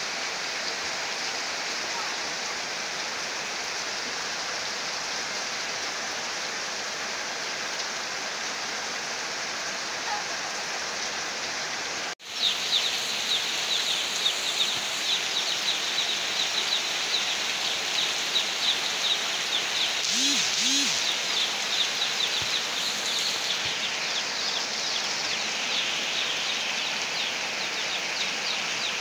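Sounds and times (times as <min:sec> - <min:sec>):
heavy rain on roof: 0:00.0 - 0:20.0
short high chirps: 0:20.0 - 0:21.2.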